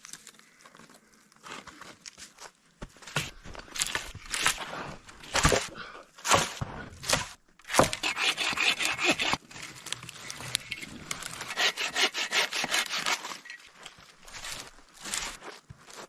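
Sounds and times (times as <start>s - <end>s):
bark being scraped off: 6.3s - 9.4s, 10.6s - 13.6s.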